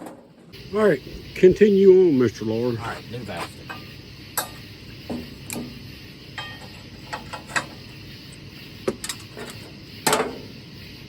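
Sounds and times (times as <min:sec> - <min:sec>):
hand tools clicking and knocking: 0:06.4 - 0:07.8.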